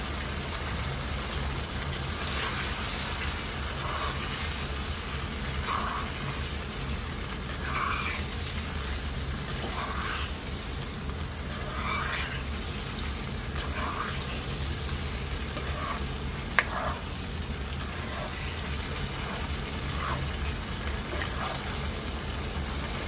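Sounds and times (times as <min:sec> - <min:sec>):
curry sizzling in a wok: 0:00.0 - 0:23.0
spoon scraping pan: 0:03.7 - 0:04.5, 0:05.6 - 0:06.4, 0:07.5 - 0:10.5, 0:11.4 - 0:17.2, 0:17.8 - 0:21.9.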